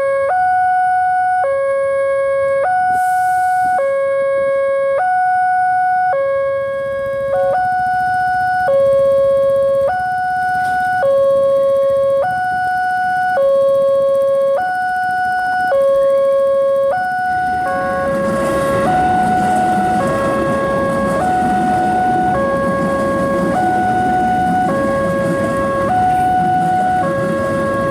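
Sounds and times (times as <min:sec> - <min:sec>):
level crossing two-tone alarm: 0:00.0 - 0:27.9
rising rumble: 0:17.3 - 0:27.9.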